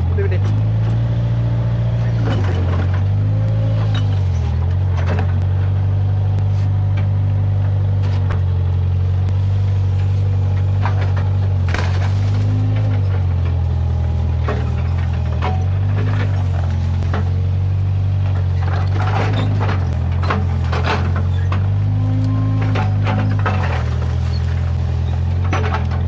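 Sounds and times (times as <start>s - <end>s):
diesel engine running under load: 0.0s - 26.0s
sharp cracks and knocks: 10.0s - 13.6s, 22.6s - 26.0s.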